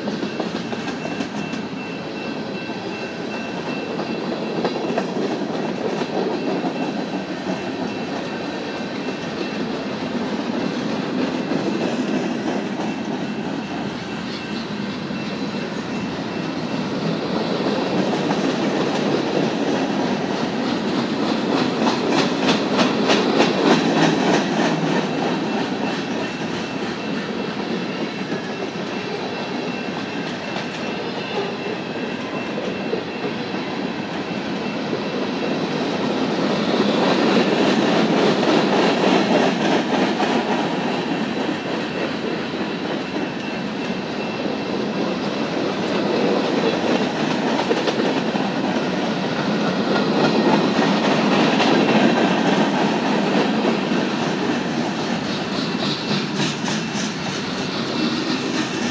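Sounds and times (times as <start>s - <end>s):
freight train wheels clattering: 0.0s - 58.9s.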